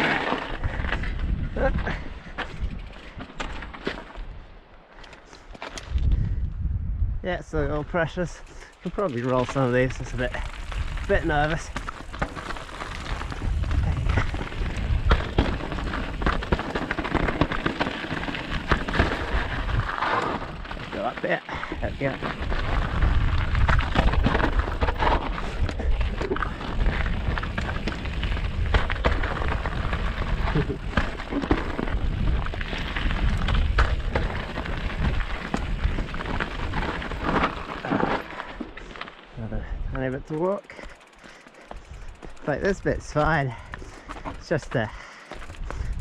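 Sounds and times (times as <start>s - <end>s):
bike knocking and rattling: 0.0s - 4.4s, 8.4s - 46.0s
wind buffeting microphone: 0.6s - 3.2s, 5.8s - 8.2s, 9.8s - 21.0s, 21.6s - 37.4s, 41.8s - 46.0s
tyres crunching over stones: 8.2s - 46.0s.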